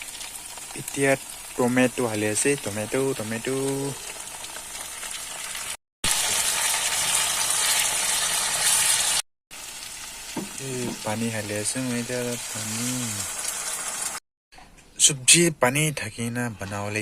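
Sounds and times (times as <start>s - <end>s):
curry sizzling in hot oil: 0.0s - 14.2s.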